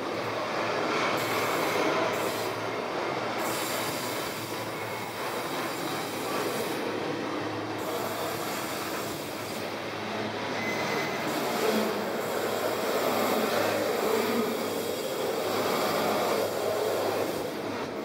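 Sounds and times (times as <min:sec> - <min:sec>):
train wheels rumbling and rattling: 0:00.0 - 0:18.0
high wheel squeal: 0:03.4 - 0:06.8, 0:10.4 - 0:17.6.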